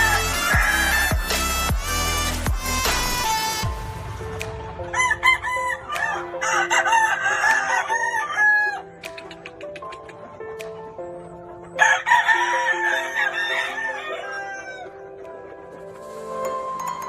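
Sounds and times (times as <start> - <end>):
rooster crowing: 0.0 - 1.1, 4.9 - 8.9, 11.8 - 15.0.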